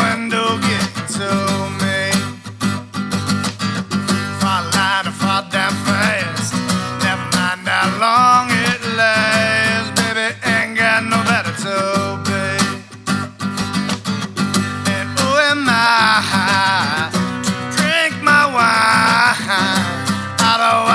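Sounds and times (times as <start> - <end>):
person singing: 0.0 - 2.4, 4.3 - 12.9, 14.7 - 20.9
strummed acoustic guitar: 0.0 - 20.9.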